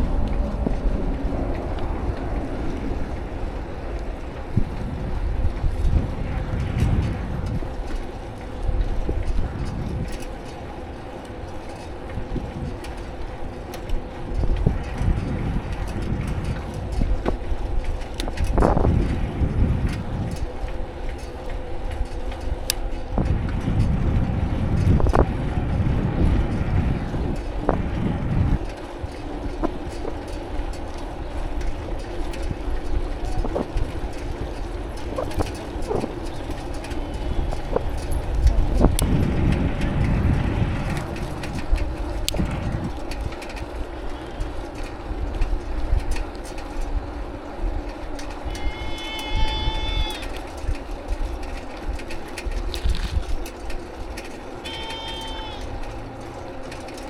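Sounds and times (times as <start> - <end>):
wind and tyres rumbling on road: 0.0 - 57.0
small rattling clicks: 6.8 - 18.9, 19.8 - 23.9, 40.8 - 57.0.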